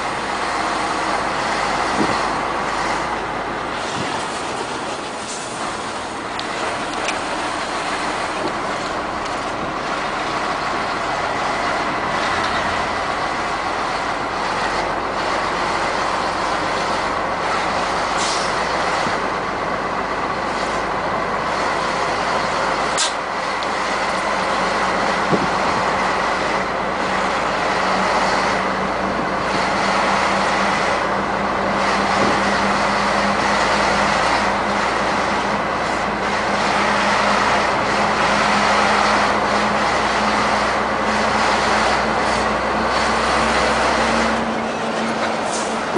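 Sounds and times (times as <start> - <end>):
heavy trucks on highway: 0.0 - 45.9.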